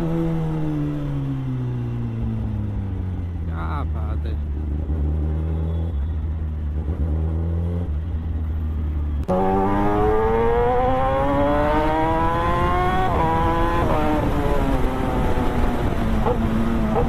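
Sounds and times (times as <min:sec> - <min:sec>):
motorcycle engine accelerating: 0:04.4 - 0:17.0.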